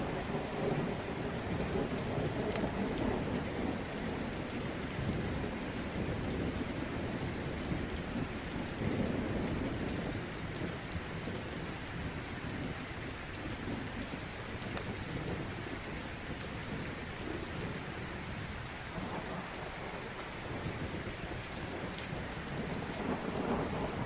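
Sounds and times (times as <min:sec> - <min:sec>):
steady rain: 0:00.0 - 0:24.0
rolling thunder: 0:21.8 - 0:24.0.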